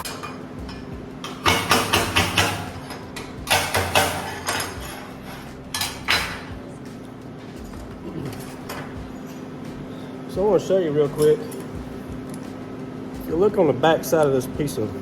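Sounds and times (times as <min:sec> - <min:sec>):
metal clanks on steel plate: 0:00.0 - 0:06.6.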